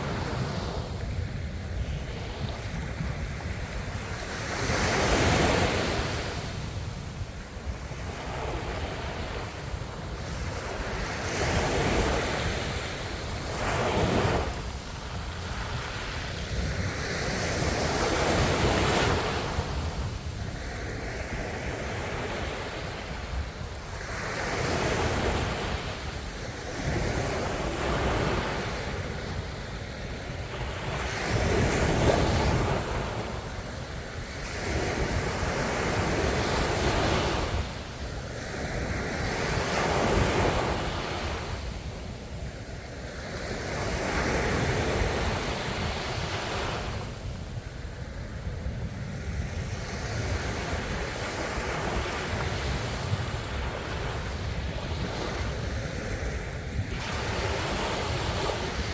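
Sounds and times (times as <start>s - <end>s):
ocean waves breaking: 49.9s - 58.9s.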